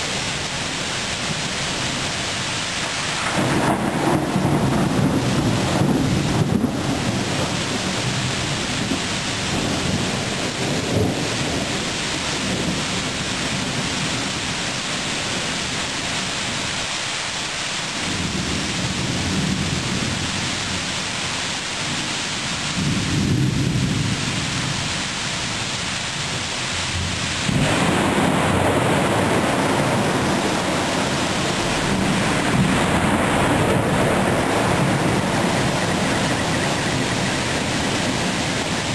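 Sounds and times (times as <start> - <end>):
rain hiss: 0.0 - 38.9
thunder rumbling: 3.0 - 16.6, 21.8 - 38.9.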